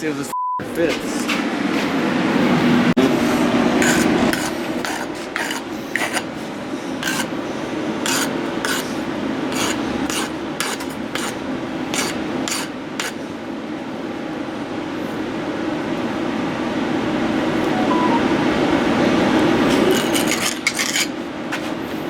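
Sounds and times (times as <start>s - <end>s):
low hum: 17.5s - 19.1s.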